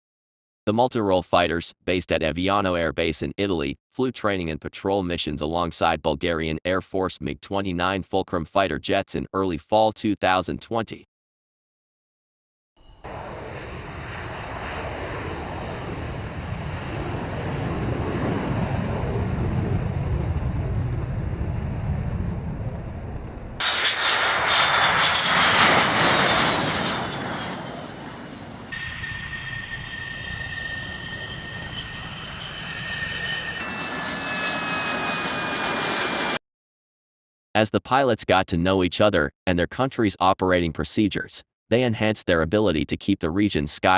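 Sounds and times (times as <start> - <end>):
jet fighter engines roaring: 13.1 - 36.4.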